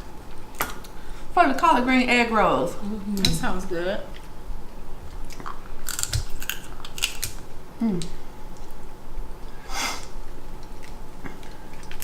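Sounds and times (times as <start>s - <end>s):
seafood shells cracking: 5.3s - 7.5s.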